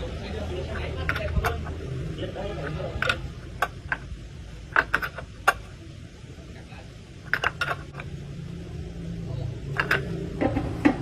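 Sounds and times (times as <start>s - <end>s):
low steady hum: 0.0s - 11.0s
metallic clinks and knocks: 4.7s - 5.6s, 7.3s - 8.1s, 9.7s - 10.6s.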